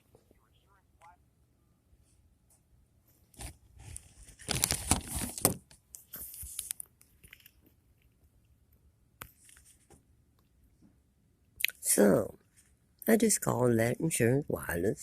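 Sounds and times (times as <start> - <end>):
rustling handling noises: 3.0 - 8.2
crinkly clicks: 3.4 - 8.2.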